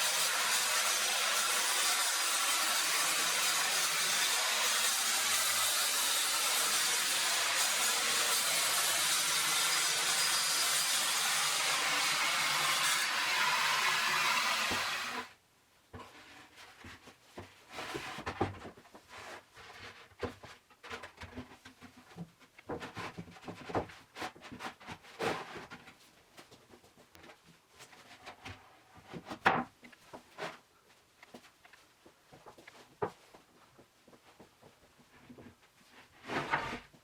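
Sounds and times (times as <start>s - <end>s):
power tool running with hiss: 0.0s - 15.2s.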